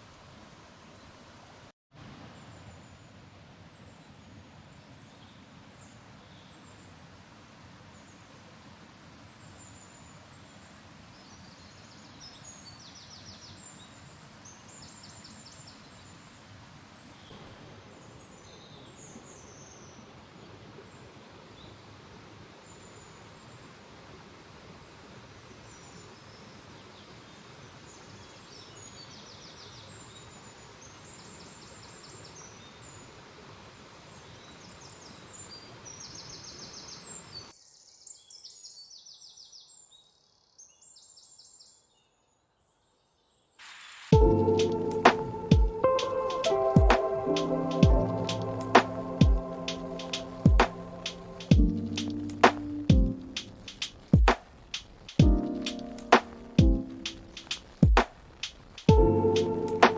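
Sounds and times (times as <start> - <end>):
birds chirping: 43.9 - 59.9
music: 44.1 - 54.4, 55.2 - 58.1, 58.9 - 59.9
steady rushing background: 44.1 - 59.9.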